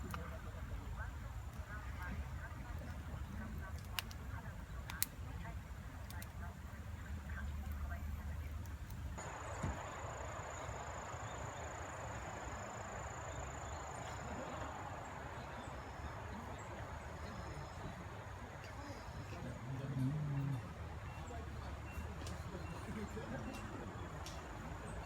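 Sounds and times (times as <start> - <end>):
insects trilling: 9.2 - 17.9.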